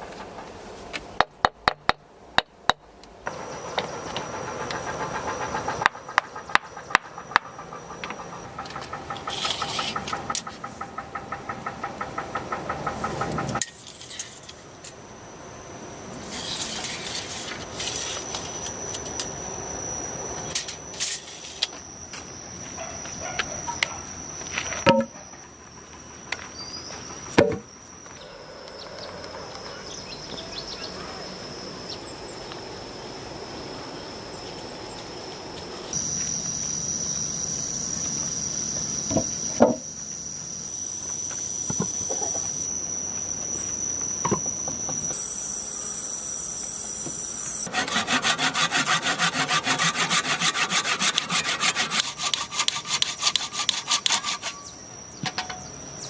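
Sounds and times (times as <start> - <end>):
high-pitched whine: 3.3 - 56.0
scraping on wood: 7.2 - 14.5, 47.7 - 54.7
hand saw sawing: 9.1 - 10.2, 47.7 - 54.7.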